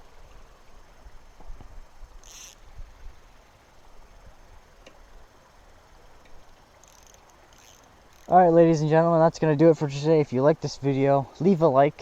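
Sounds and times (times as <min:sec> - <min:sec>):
faint scattered clicks: 0:06.2 - 0:08.5.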